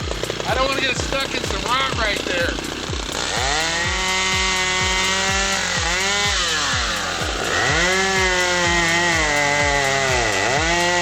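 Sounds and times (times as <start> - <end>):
chainsaw running at high revs: 0.0 - 11.0.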